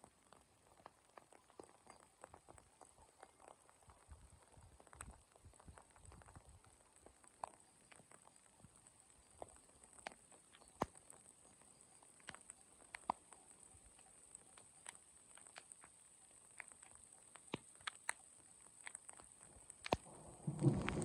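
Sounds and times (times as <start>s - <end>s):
faint raindrops ticking: 0.0s - 21.0s.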